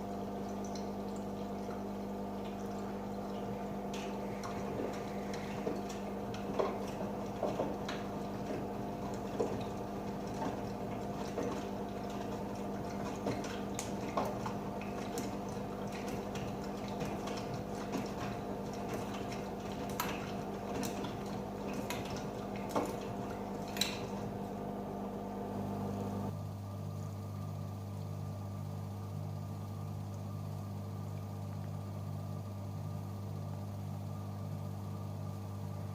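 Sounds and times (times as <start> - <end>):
water sloshing in drum: 0.0 - 26.3
washing machine motor hum: 0.0 - 35.9.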